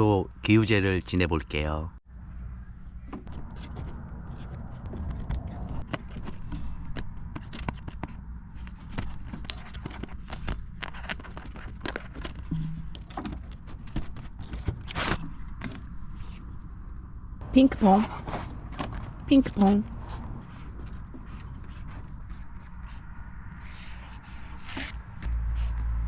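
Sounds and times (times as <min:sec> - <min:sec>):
low steady rumble: 0:01.9 - 0:26.0
clicks knocks and scrapes: 0:03.1 - 0:15.9.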